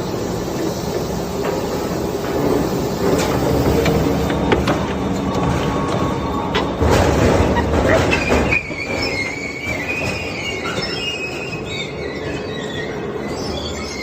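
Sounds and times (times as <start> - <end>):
high metallic squealing: 7.4 - 14.0.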